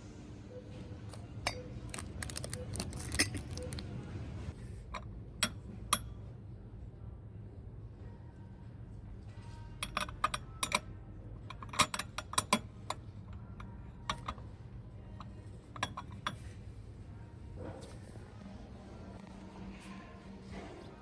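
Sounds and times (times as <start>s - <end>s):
low steady hum: 0.0s - 21.0s
hard objects clinking: 1.1s - 4.2s.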